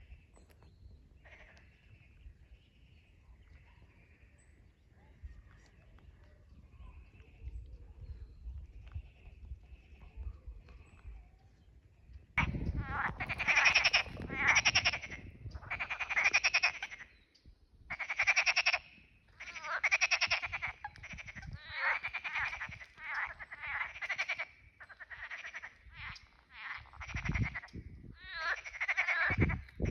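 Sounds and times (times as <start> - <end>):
frogs croaking: 0.0 - 4.6, 12.1 - 17.3, 17.9 - 29.9.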